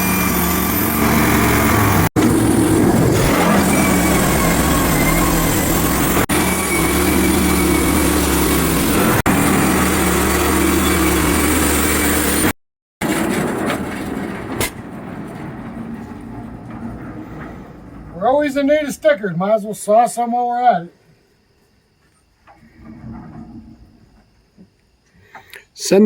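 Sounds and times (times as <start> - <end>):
small gasoline engine running: 0.0 - 13.3.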